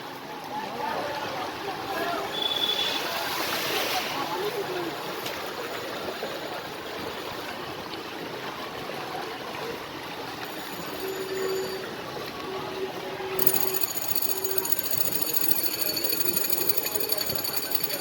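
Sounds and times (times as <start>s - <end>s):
churned water rushing: 0.4s - 13.3s
faint broken tone: 13.4s - 18.0s.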